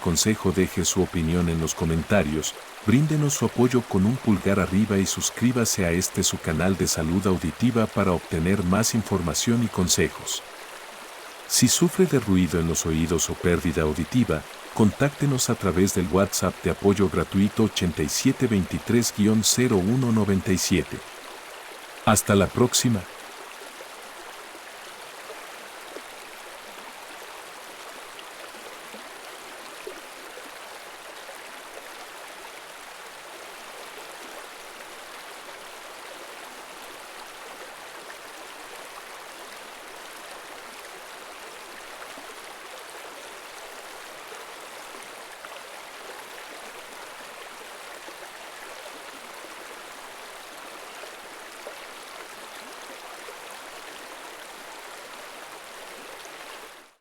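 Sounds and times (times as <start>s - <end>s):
river water running over rocks: 0.0s - 57.0s.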